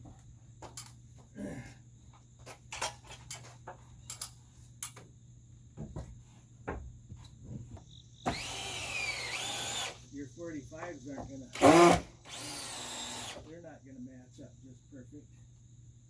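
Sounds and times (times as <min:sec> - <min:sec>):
power drill starting: 0:08.3 - 0:10.0, 0:11.5 - 0:13.5.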